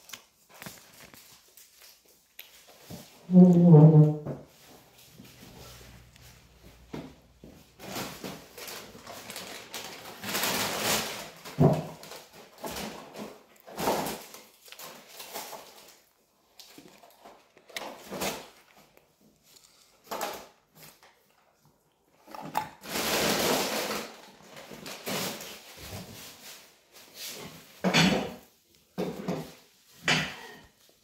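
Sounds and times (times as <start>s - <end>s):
person chewing: 1.7s - 3.6s, 16.0s - 20.1s.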